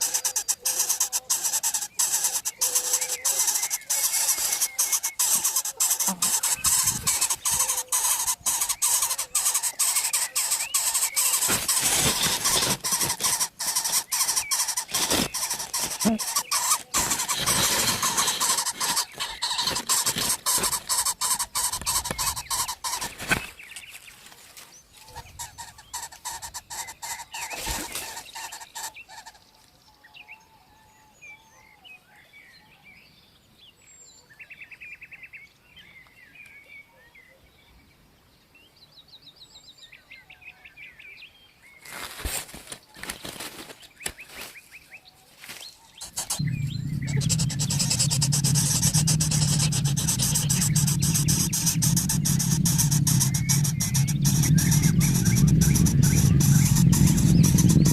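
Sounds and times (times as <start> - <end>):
small birds chirping: 0.0 - 36.8, 37.6 - 57.9
harsh crackling noise: 3.4 - 23.5, 46.0 - 57.9.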